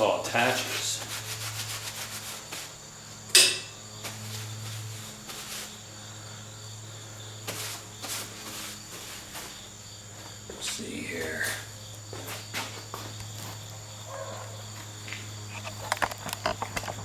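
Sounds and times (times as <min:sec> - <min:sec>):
low electrical hum: 0:00.0 - 0:17.0
handling knocks and clicks: 0:15.1 - 0:17.0.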